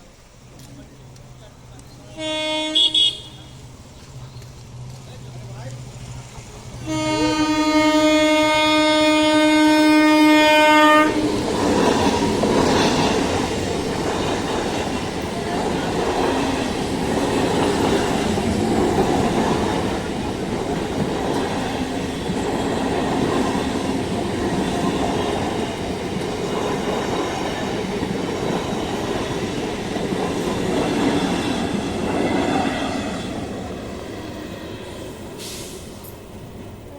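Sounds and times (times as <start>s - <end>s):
train rumbling past: 0.0s - 36.9s
train horn blast: 2.1s - 3.6s, 6.8s - 11.2s.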